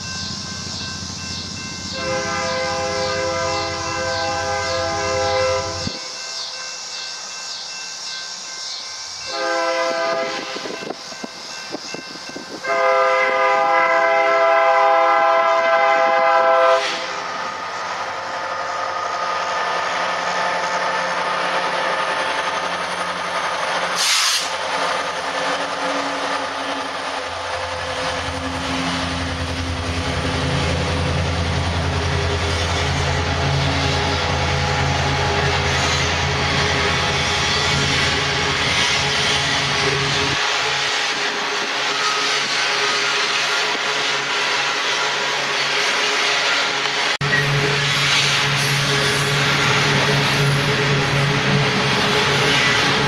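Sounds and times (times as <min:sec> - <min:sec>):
train rumbling past on rails: 0:00.0 - 0:53.0
locomotive air horn blasts: 0:01.9 - 0:06.1, 0:09.3 - 0:10.8, 0:12.6 - 0:17.3.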